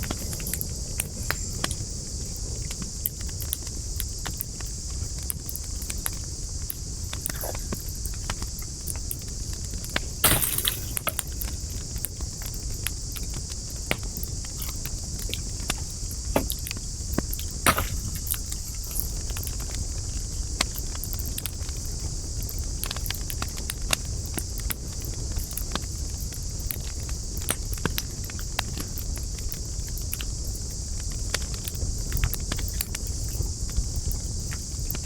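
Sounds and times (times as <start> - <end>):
campfire crackling and popping: 0.0 - 21.7
fire hiss and low rumble: 0.0 - 35.0.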